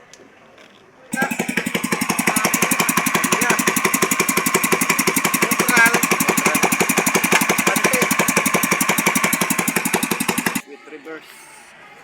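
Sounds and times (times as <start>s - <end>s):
boat engine idling: 1.2s - 10.6s.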